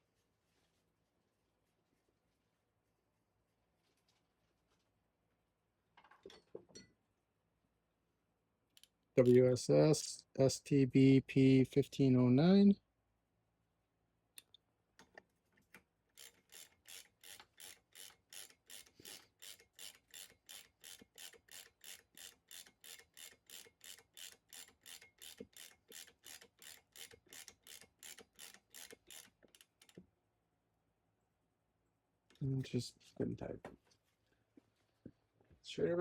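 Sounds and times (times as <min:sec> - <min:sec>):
ratchet wrench clicking: 0:16.2 - 0:30.0.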